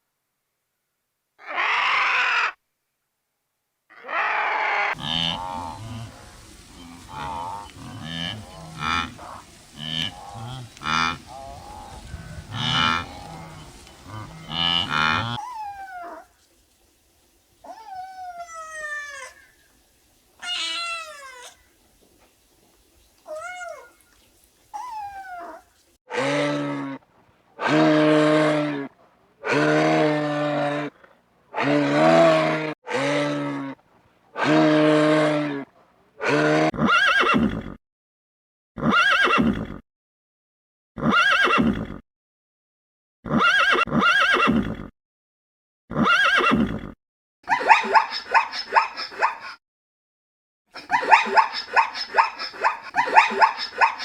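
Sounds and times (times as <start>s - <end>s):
horse whinnying: 3.9s - 5.0s, 36.2s - 37.8s, 38.8s - 39.8s, 41.0s - 42.0s, 43.2s - 44.9s, 45.9s - 47.0s
long low animal calls: 3.9s - 16.4s, 23.2s - 27.0s.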